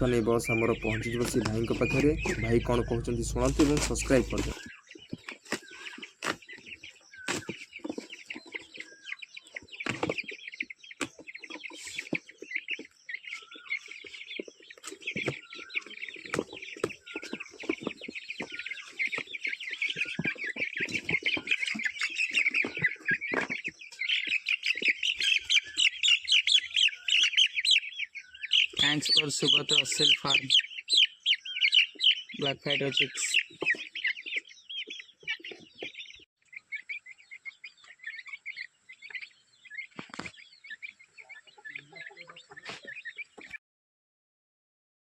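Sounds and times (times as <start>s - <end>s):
knocks and bumps: 0.0s - 4.6s
chicks peeping: 0.0s - 43.6s.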